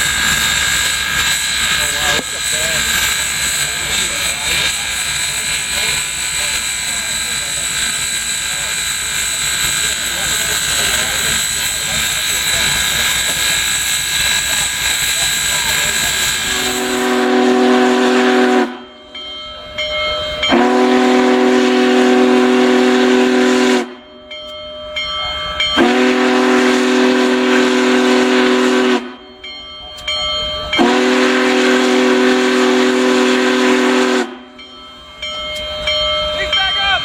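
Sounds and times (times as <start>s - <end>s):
steady steam hiss: 0.0s - 17.4s
steam locomotive whistle: 0.0s - 18.9s, 20.4s - 24.0s, 25.8s - 29.2s, 30.7s - 34.6s.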